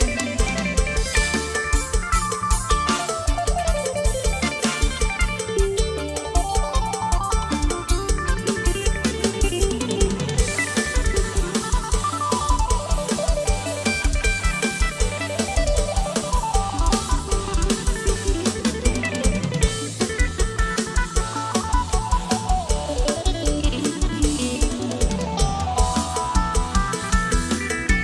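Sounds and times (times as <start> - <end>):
bass: 0.0 - 28.0
drum kit beat: 0.0 - 28.0
guitar melody: 0.0 - 28.0.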